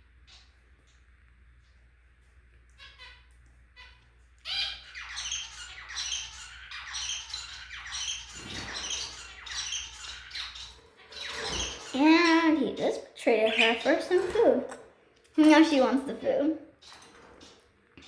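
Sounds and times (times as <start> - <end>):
budgerigars chirping: 2.8 - 14.8.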